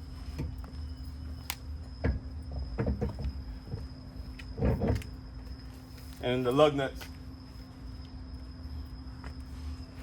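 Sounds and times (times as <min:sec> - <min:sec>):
tools and wheel parts clanking: 0:00.0 - 0:07.2
steady hum: 0:00.0 - 0:10.0.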